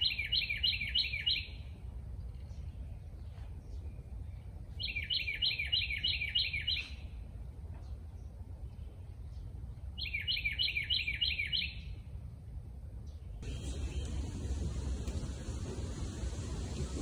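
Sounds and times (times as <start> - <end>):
songbird singing: 0.0 - 12.2, 13.0 - 17.0
steady low rumble: 12.2 - 17.0.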